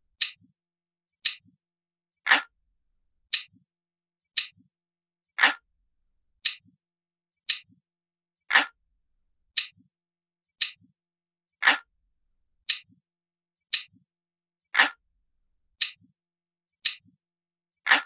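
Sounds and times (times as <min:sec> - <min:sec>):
clock ticking: 0:00.1 - 0:00.5.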